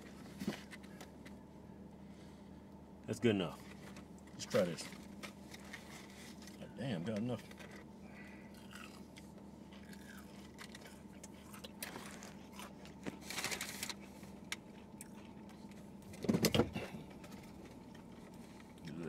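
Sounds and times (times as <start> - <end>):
chewing crispy food: 7.4 - 16.1, 17.2 - 19.0.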